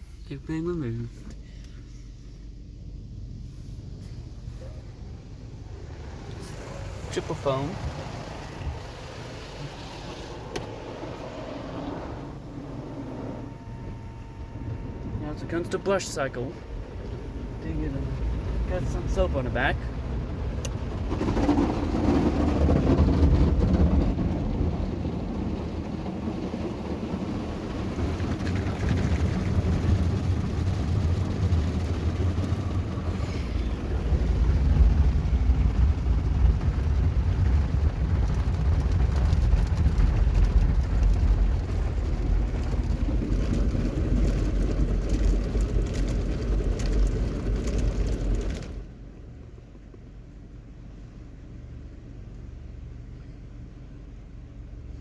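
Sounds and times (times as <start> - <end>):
car wash brushes scrubbing: 3.3 - 13.5, 18.2 - 48.8.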